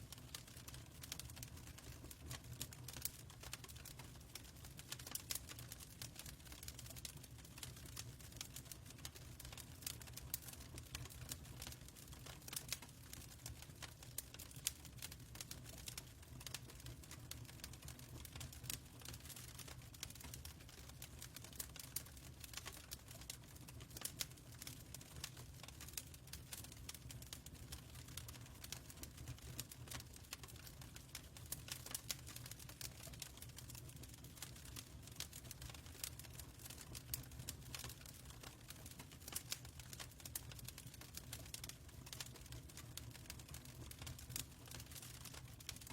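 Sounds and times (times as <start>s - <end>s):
fire crackling and popping: 0.0s - 45.9s.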